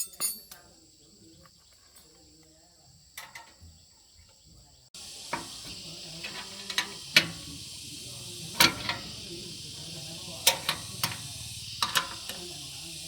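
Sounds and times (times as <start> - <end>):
sharp metallic clinks: 0.0 - 0.8
steady hiss: 4.9 - 13.0.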